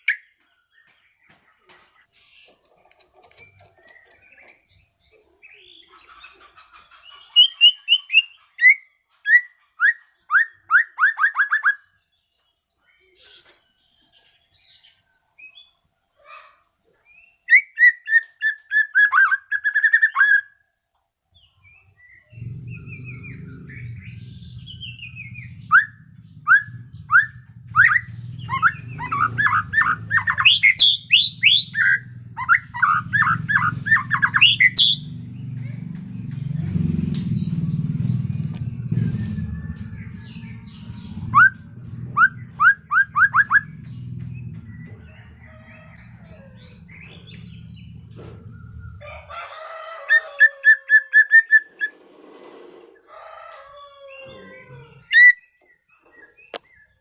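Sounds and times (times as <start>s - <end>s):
bird singing whistled notes: 17.1s - 20.6s, 21.4s - 35.1s, 38.8s - 43.8s
steady low rumble: 22.4s - 49.3s.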